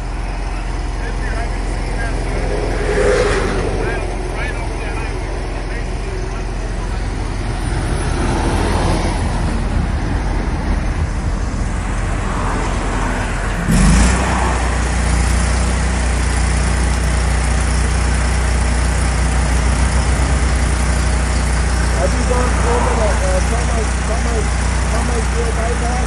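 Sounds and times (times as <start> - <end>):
vehicle engine and road drone: 0.0 - 26.0.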